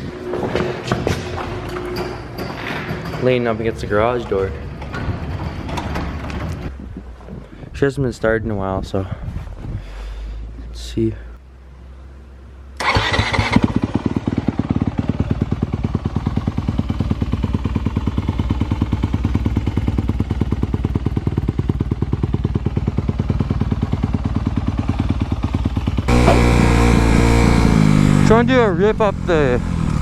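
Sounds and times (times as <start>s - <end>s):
dirt bike engine idling: 13.2s - 30.0s.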